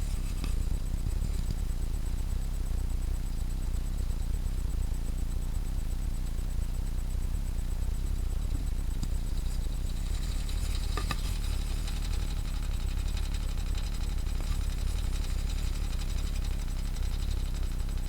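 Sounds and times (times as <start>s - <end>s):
brief rattle: 9.4s - 15.5s.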